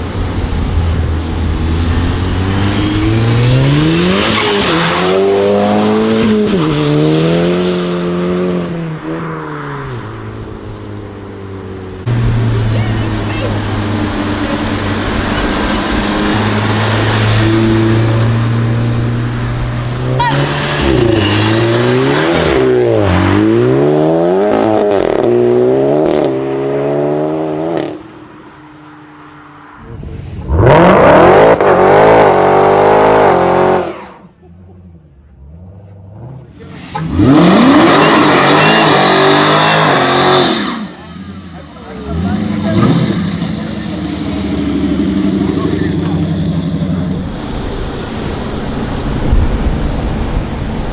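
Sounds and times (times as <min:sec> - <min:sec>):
car engine revving hard: 0:01.5 - 0:08.8, 0:12.1 - 0:28.0, 0:30.5 - 0:34.1, 0:36.0 - 0:47.4
car engine exhaust drone: 0:34.3 - 0:49.2
loud general noise: 0:35.4 - 0:50.9.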